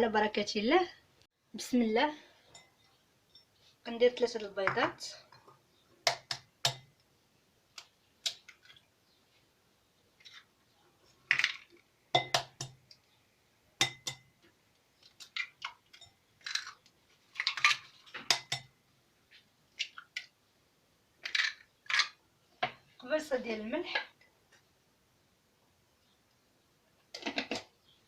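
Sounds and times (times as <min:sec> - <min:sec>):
eggs cracking on bowl rim: 0:07.8 - 0:08.8.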